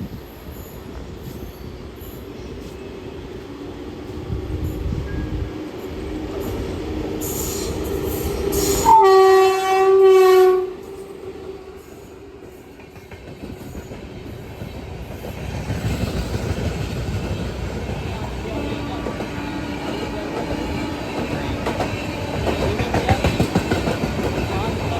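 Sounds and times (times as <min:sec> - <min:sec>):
electric train rumbling: 0:00.0 - 0:24.9
train horn blast: 0:08.6 - 0:11.1.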